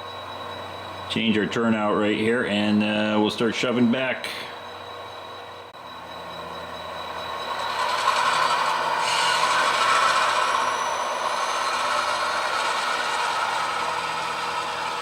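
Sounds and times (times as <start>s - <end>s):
model train diesel engine sound: 5.6s - 15.0s.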